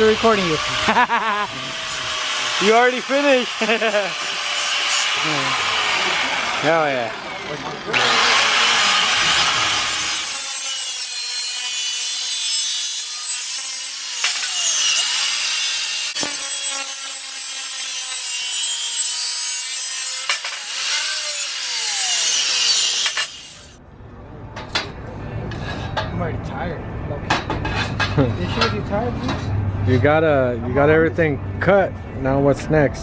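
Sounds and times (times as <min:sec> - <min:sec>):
power saw cutting steel: 0:00.0 - 0:23.8.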